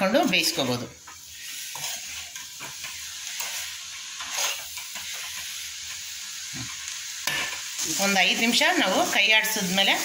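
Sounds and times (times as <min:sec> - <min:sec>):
eggs sizzling in a pan: 0:00.0 - 0:10.0
spatula scraping a pan: 0:00.1 - 0:09.8.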